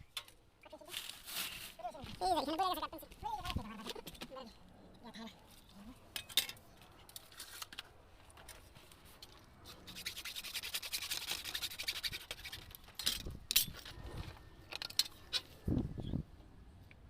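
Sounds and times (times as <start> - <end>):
rapid scrubbing strokes: 9.7 - 12.7.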